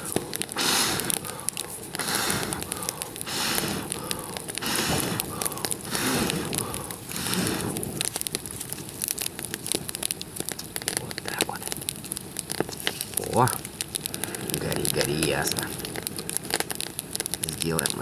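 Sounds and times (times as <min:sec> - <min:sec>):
hissing whooshes: 0:00.0 - 0:08.3
campfire crackling and popping: 0:00.0 - 0:18.0.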